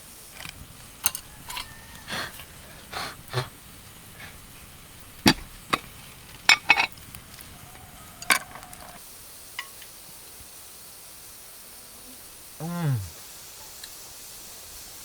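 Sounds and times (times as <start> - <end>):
low background noise: 0.0 - 15.0
dishes and utensils clinking: 0.4 - 2.6, 5.2 - 9.0.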